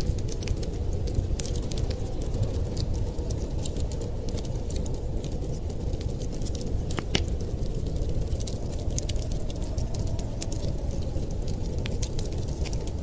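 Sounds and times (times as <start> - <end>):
low fire rumble: 0.0 - 13.0
sharp fire snaps: 0.0 - 13.0
wood fire crackling: 0.0 - 13.0.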